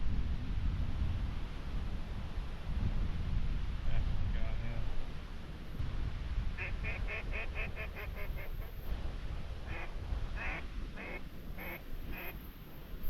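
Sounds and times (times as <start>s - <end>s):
duck quacking: 6.6s - 8.7s.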